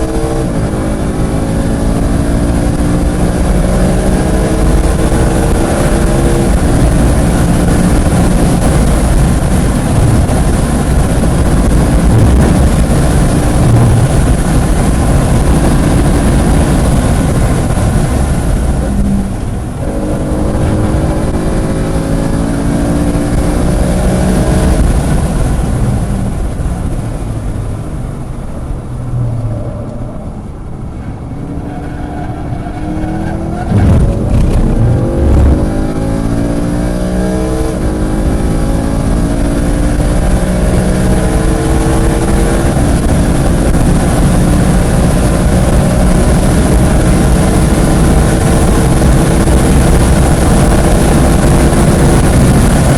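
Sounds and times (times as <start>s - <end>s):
car engine revving: 0.0s - 52.9s
wind and road noise: 0.0s - 52.9s
gear change: 29.1s - 36.6s.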